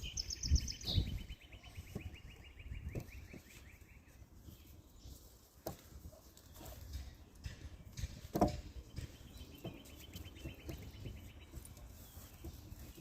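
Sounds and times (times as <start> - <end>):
songbird trilling: 0.0 - 4.7.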